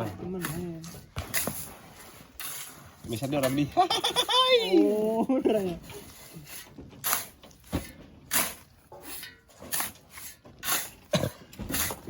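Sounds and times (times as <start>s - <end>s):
shovels scraping sand: 0.0s - 12.0s.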